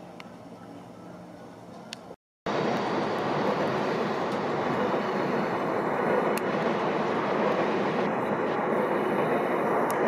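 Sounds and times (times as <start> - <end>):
train running on tracks: 2.5 - 10.0.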